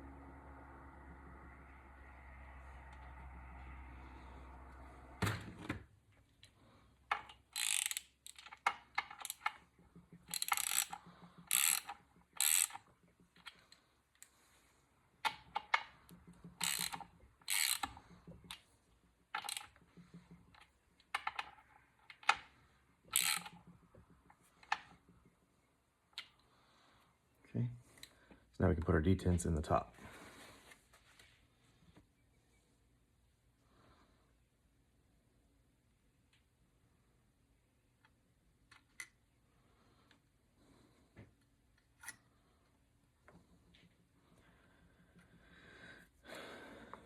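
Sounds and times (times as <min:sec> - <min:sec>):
ratchet wrench clicking: 0:07.1 - 0:09.6, 0:10.2 - 0:13.6, 0:16.5 - 0:18.6, 0:19.4 - 0:19.8, 0:23.1 - 0:23.7.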